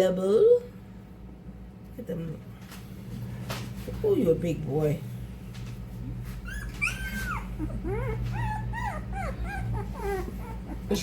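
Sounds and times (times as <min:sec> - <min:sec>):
puppies whining: 0:06.3 - 0:11.0.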